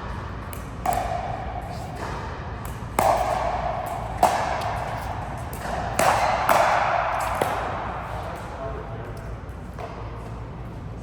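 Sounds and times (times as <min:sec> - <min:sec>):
ball strikes on court: 0:02.0 - 0:07.8.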